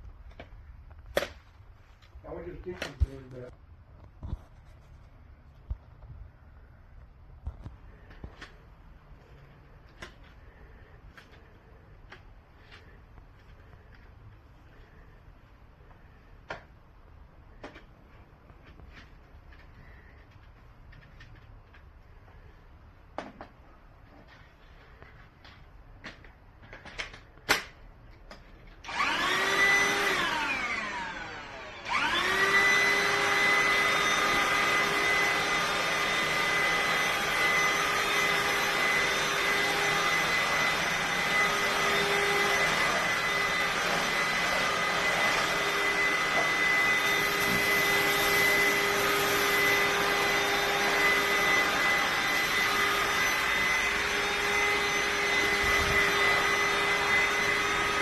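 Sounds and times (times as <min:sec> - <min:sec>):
vacuum cleaner motor whining: 0:28.3 - 0:58.0.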